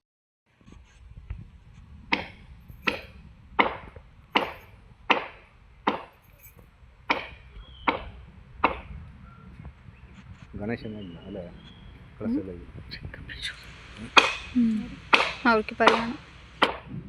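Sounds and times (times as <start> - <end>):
blade chopping into wood: 2.1 - 6.1, 14.2 - 14.5, 15.1 - 16.9.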